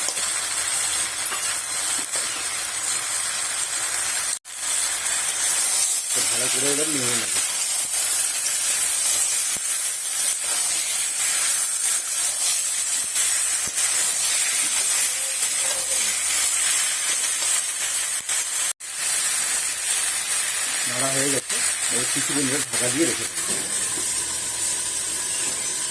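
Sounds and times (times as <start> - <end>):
vegetables sizzling in a pan: 0.0 - 25.9
stirring in a pan: 5.2 - 17.6.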